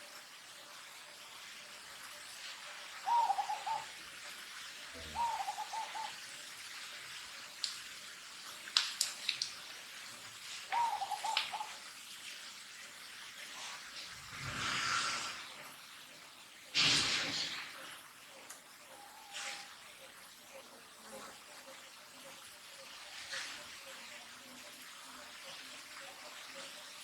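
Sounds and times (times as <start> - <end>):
short wavering animal calls: 5.0 - 6.1.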